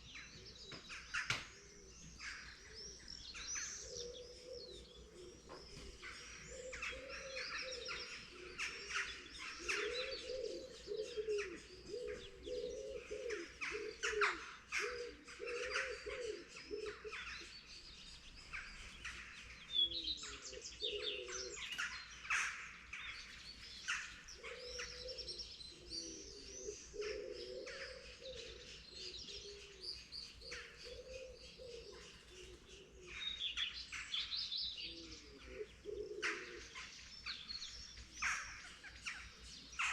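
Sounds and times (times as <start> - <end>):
songbirds chirping and trilling: 0.0 - 39.9
dove cooing: 1.6 - 17.5, 19.8 - 22.0, 23.9 - 34.0, 34.8 - 37.1.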